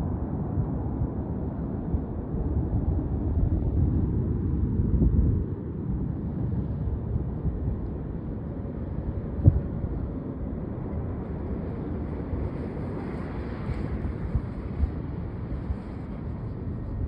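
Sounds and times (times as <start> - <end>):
airplane rumble after touchdown: 0.0 - 17.0
wind buffeting microphone: 0.0 - 17.0.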